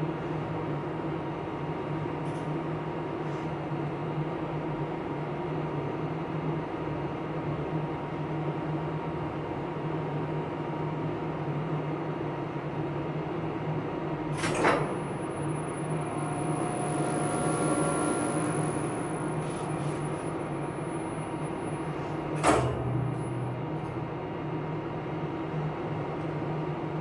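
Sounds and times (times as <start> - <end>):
elevator machinery humming: 14.2 - 27.0
high steady whine: 14.7 - 27.0
faint tones: 15.0 - 24.2.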